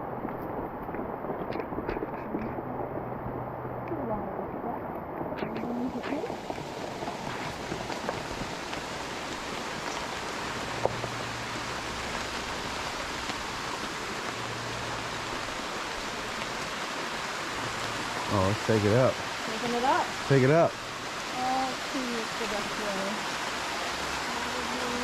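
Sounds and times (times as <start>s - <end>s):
running water hiss: 0.0s - 25.0s.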